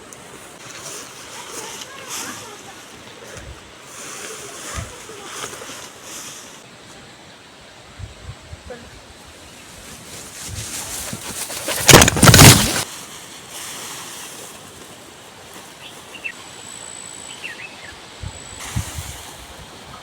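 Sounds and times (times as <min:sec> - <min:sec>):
faint bird chirps: 0:15.8 - 0:18.6.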